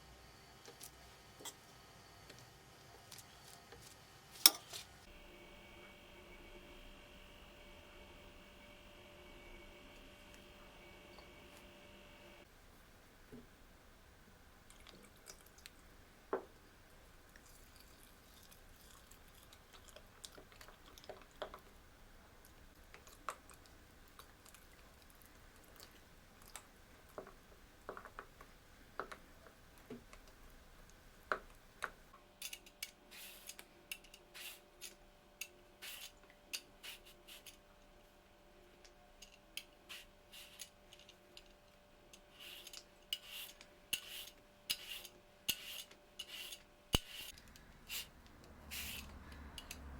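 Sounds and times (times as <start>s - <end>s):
faint steady hum: 0.0s - 49.9s
utensils clicking and tapping: 31.3s - 37.6s, 39.2s - 49.9s.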